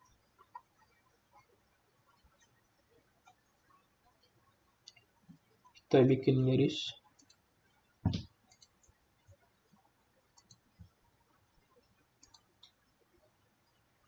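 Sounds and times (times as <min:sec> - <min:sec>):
computer mouse clicks: 0:07.2 - 0:07.4, 0:08.1 - 0:09.0, 0:10.3 - 0:11.0, 0:11.8 - 0:12.8.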